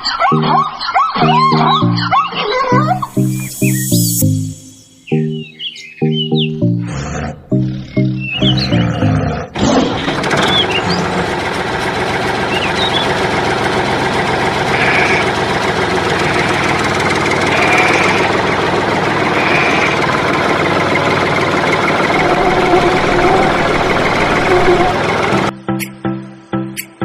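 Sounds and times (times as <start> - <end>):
music: 0.1 - 9.4, 22.1 - 27.0
small electric motor running: 16.3 - 18.4, 19.3 - 20.1, 22.0 - 25.0.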